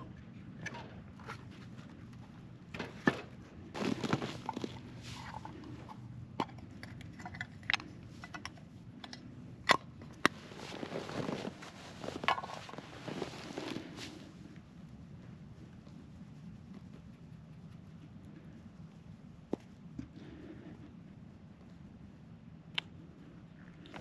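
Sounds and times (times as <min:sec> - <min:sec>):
gear and firewood handled: 0:01.1 - 0:14.8
footsteps crunching in snow: 0:03.8 - 0:05.4, 0:10.3 - 0:14.4.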